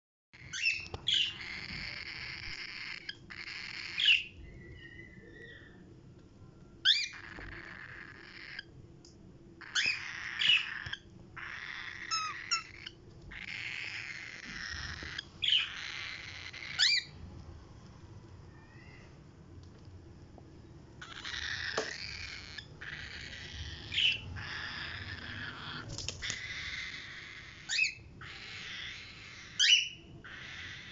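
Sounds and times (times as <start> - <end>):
parrots squawking: 0.4 - 5.8, 6.8 - 8.7, 9.6 - 17.2, 21.0 - 30.9.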